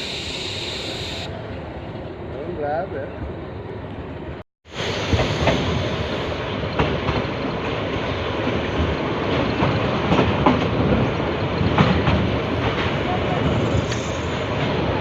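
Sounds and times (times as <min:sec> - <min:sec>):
train wheels clacking over rail joints: 0:08.4 - 0:14.9.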